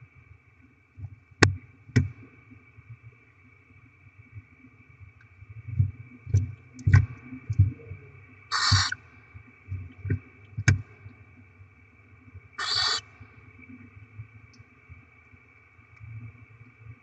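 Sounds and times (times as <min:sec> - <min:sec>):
faint steady whine: 0:00.0 - 0:17.0
owl chicks hissing begging calls: 0:08.5 - 0:09.0, 0:12.6 - 0:13.0.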